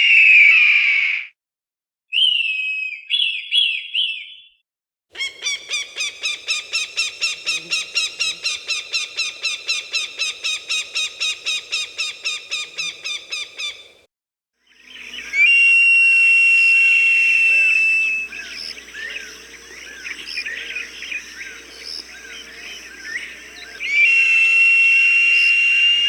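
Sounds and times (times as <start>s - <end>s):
falcon calling: 5.2s - 14.0s, 14.9s - 26.0s.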